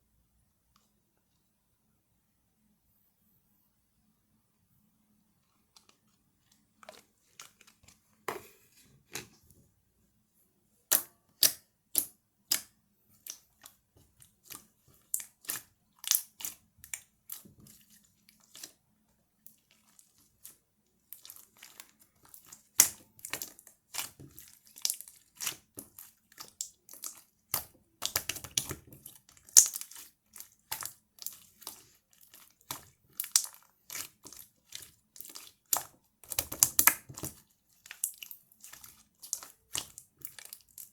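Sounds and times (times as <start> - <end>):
slime clicking and popping: 26.6 - 28.8, 29.5 - 29.9, 35.2 - 37.4.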